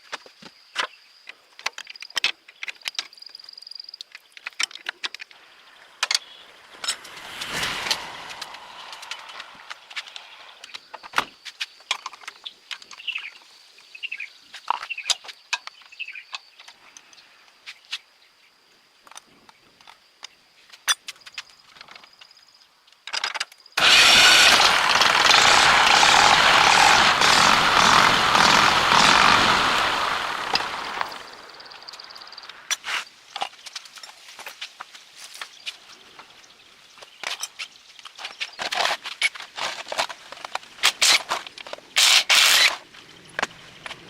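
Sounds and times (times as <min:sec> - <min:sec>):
small truck engine starting: 0:06.6 - 0:10.5, 0:23.8 - 0:32.2.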